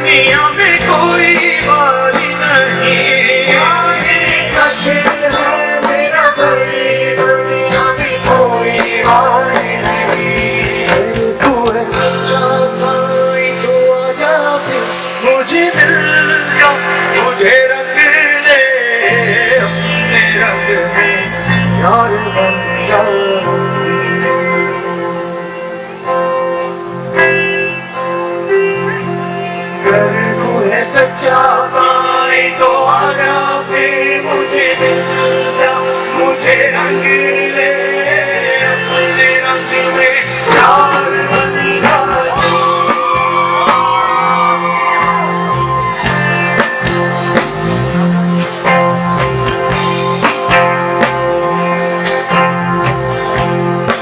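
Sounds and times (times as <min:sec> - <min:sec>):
drum and cymbal hits: 0:00.0 - 0:23.4, 0:38.6 - 0:54.0
plucked-string lead melody: 0:00.0 - 0:31.7
bass guitar: 0:00.0 - 0:54.0
live band instrumental: 0:00.0 - 0:54.0.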